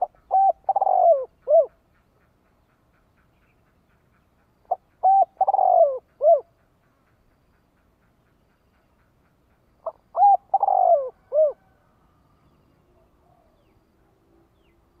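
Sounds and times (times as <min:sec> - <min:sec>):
dove cooing: 0:00.0 - 0:01.8, 0:04.7 - 0:06.5, 0:09.8 - 0:11.8.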